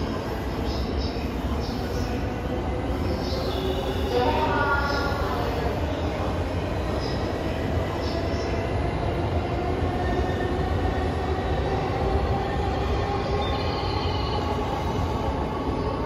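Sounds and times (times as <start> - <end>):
train rumble and hum: 0.0 - 16.0.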